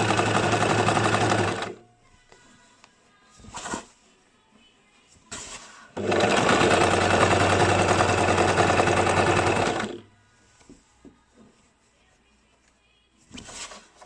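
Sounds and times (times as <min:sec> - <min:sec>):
sewing machine stitching: 0:00.0 - 0:01.8, 0:05.4 - 0:10.1.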